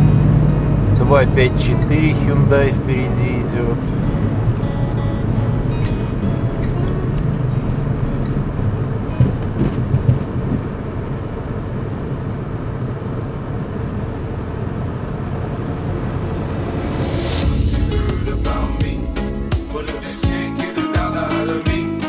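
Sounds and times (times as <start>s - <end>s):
music: 0.0s - 9.5s, 16.1s - 22.0s
car road and engine noise: 0.0s - 20.6s.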